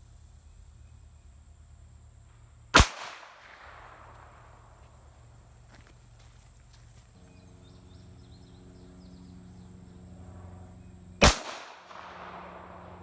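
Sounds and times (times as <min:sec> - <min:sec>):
low steady hum: 0:00.0 - 0:13.0
gunshot with echo: 0:02.8 - 0:04.3, 0:11.2 - 0:13.0.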